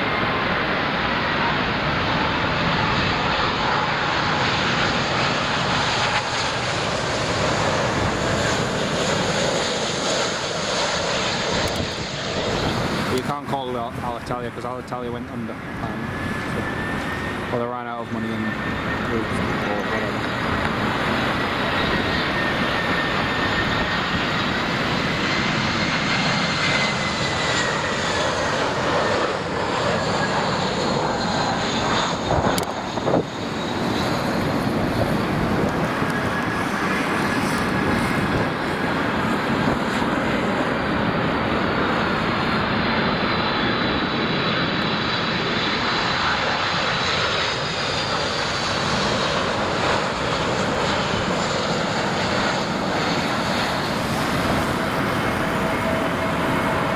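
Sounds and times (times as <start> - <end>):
jet engines roaring with whine: 0.0 - 56.9.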